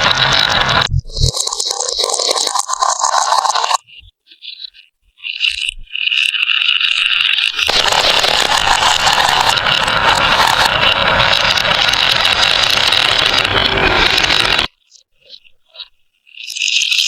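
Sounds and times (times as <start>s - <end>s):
marbles rolling on a track: 0.0s - 3.8s, 6.3s - 14.7s.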